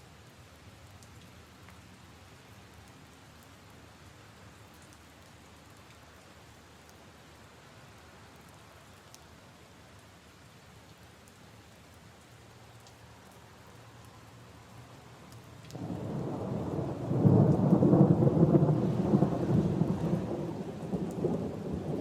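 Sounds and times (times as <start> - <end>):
faint rain on puddles and leaves: 0.0 - 22.0
single raindrops ticking: 12.2 - 19.3, 20.3 - 22.0.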